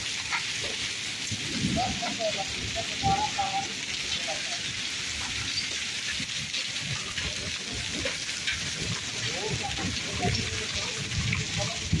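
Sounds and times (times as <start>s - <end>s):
rain and hail pattering on ground: 0.0s - 12.0s.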